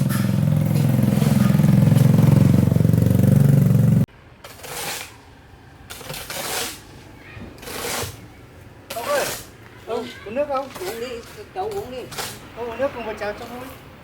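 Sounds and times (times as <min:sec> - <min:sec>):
small engine rumbling: 0:00.0 - 0:04.1.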